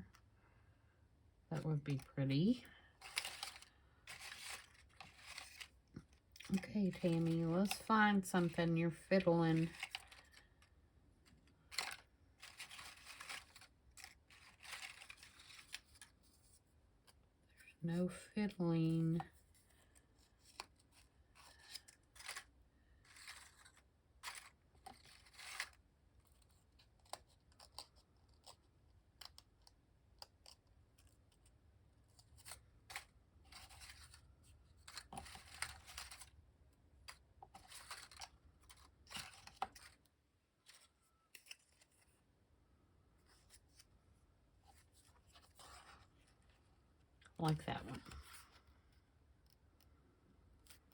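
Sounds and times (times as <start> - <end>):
paper rustling: 3.0 - 17.2, 19.4 - 28.6, 32.1 - 36.4, 37.0 - 42.2, 44.7 - 46.6.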